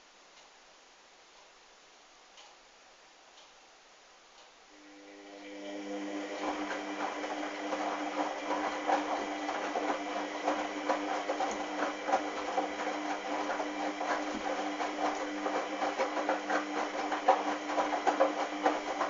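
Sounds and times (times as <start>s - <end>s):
washing machine motor hum: 4.7s - 19.0s.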